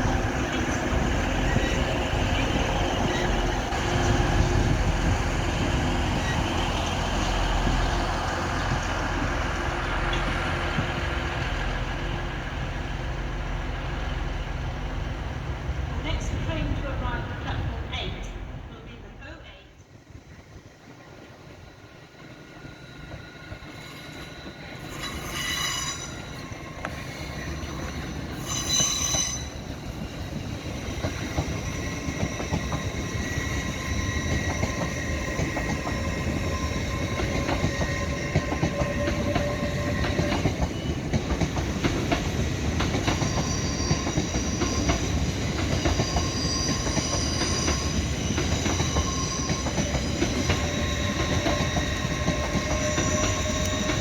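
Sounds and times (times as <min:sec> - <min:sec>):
train rumbling on rails: 0:00.0 - 0:54.0
wheels squealing on track: 0:23.6 - 0:30.0, 0:43.0 - 0:54.0.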